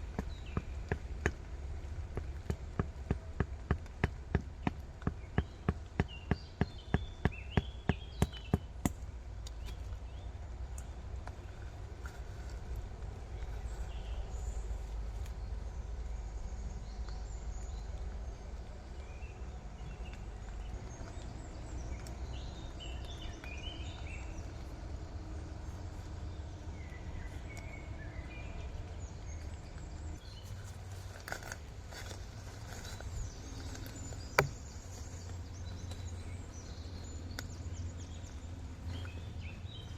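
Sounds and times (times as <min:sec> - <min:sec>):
birds chirping: 0:00.0 - 0:39.9
sharp knocks: 0:34.4 - 0:34.6.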